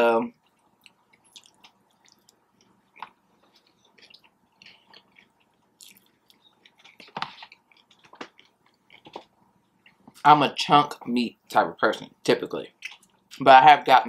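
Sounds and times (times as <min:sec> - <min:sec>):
chewing with wet mouth smacks: 0:00.4 - 0:10.2, 0:12.8 - 0:13.4.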